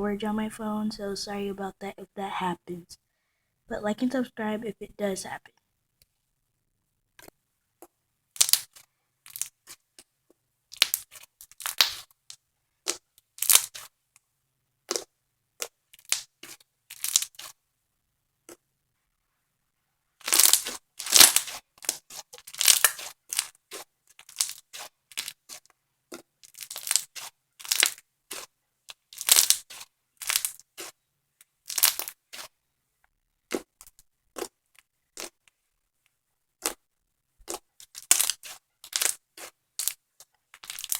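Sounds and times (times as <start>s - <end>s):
slime crackling and popping: 8.4s - 9.8s, 10.7s - 13.9s, 14.8s - 17.6s, 20.2s - 31.0s, 31.6s - 32.5s, 33.4s - 35.4s, 36.6s - 36.8s, 37.4s - 40.9s.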